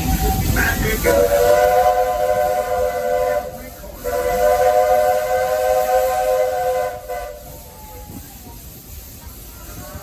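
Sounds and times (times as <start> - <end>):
steam whistle chord blasts: 1.1 - 7.5.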